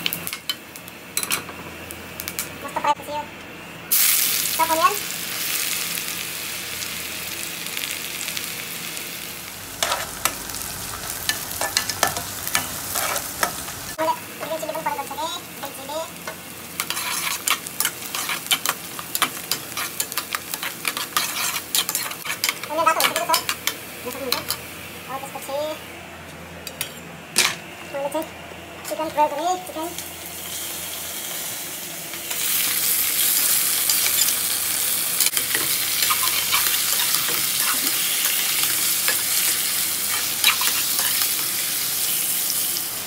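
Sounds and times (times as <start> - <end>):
food sizzling in hot oil: 3.9 - 24.9, 29.9 - 43.0
metal spoon scraping pan: 16.8 - 23.4.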